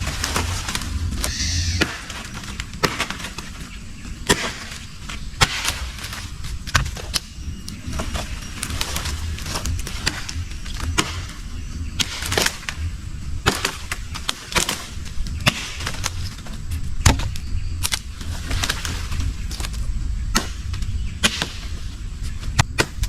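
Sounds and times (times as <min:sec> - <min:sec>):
low steady rumble: 0:00.0 - 0:02.1
crop plants snapping and rustling: 0:13.5 - 0:23.0.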